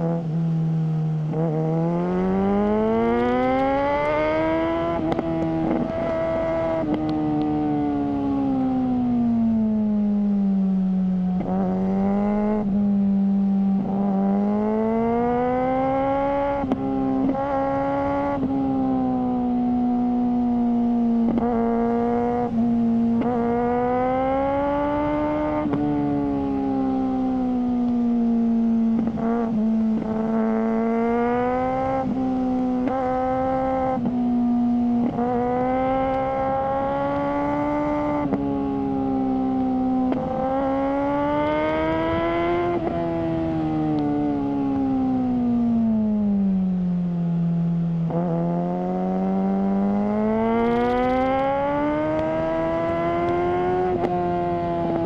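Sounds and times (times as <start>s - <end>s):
motorcycle engine running: 21.2s - 43.6s, 47.8s - 55.0s.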